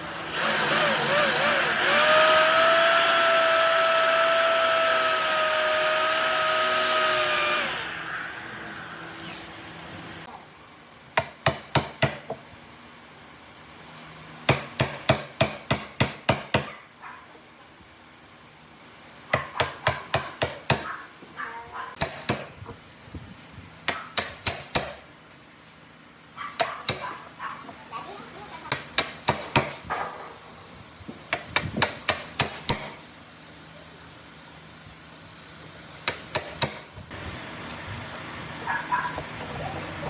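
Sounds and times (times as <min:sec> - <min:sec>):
power tool motor winding down: 0:00.0 - 0:10.3.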